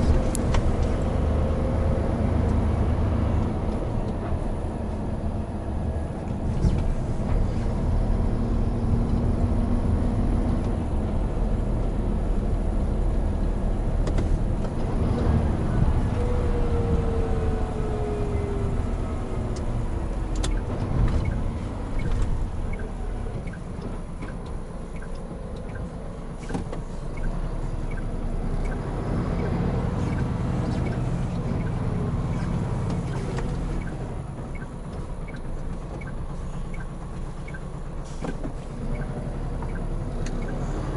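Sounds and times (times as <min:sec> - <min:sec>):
truck diesel engine running: 0:00.0 - 0:40.9
tyre and road noise: 0:00.0 - 0:40.9.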